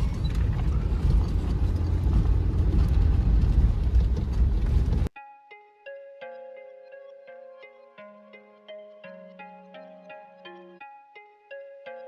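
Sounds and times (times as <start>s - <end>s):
engine and road rumble: 0.0s - 5.1s
soft plucked guitar music: 5.1s - 12.0s.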